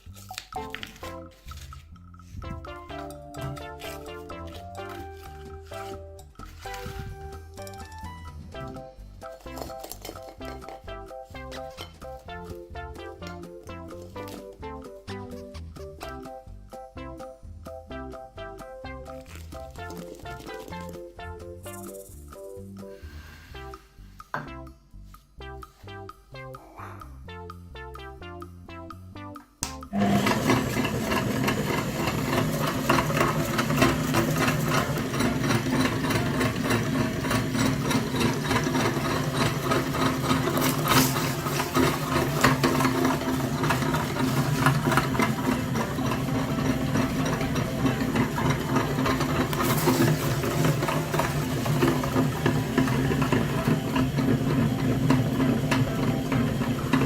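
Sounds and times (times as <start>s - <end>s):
music: 0.0s - 57.0s
small motor running: 30.0s - 57.0s.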